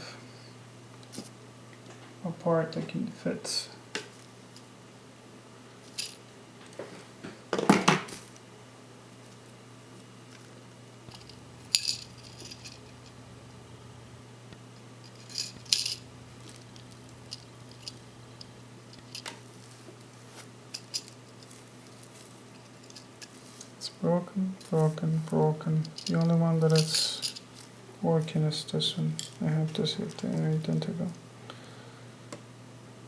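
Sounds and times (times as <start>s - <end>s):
steady low hum: 10.7s - 21.2s.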